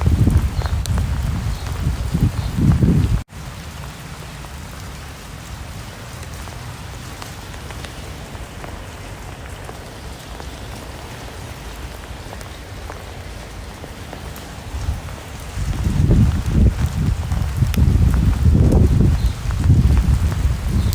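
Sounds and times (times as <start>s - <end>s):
rain falling on a surface: 0.0s - 20.9s.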